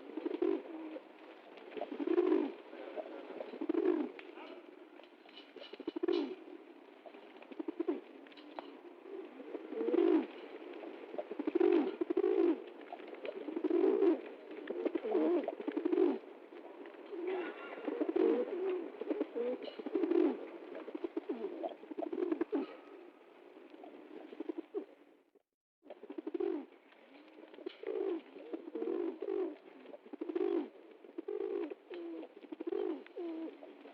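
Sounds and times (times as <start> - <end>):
pigeon cooing: 0.0 - 25.0, 25.9 - 26.7, 27.5 - 33.9.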